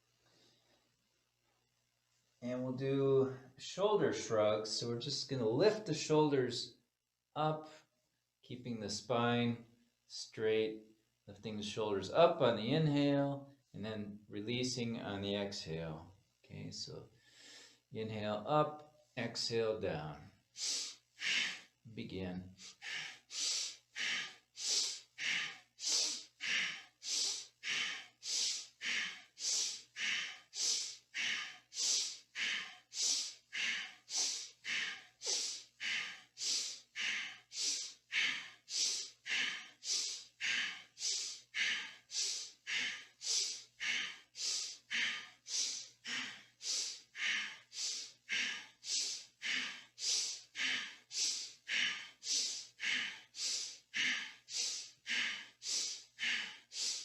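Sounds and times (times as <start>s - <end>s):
person breathing rapidly: 17.2s - 17.9s, 20.2s - 57.0s.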